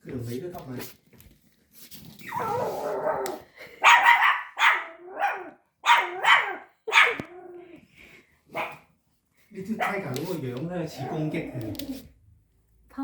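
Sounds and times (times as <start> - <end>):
puppy barking: 2.9 - 7.3, 8.5 - 8.9, 9.8 - 10.2.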